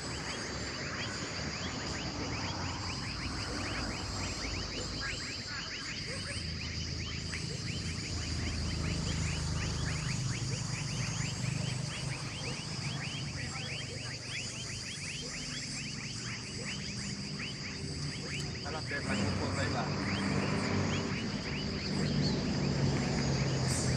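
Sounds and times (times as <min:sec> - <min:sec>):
high-pitched drone: 0:00.0 - 0:23.9
rapid falling animal chirps: 0:00.0 - 0:23.9.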